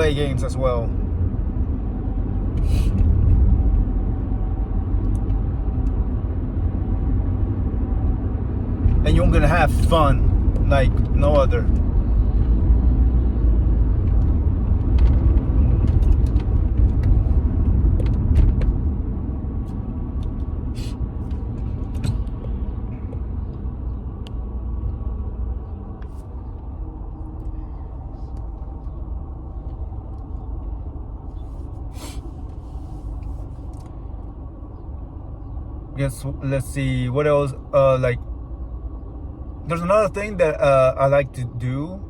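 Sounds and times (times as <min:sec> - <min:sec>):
vehicle interior rumble: 0:00.0 - 0:42.0.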